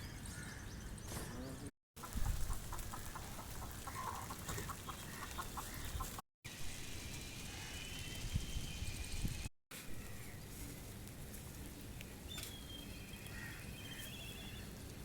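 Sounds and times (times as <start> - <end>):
chicken clucking: 2.0 - 6.2.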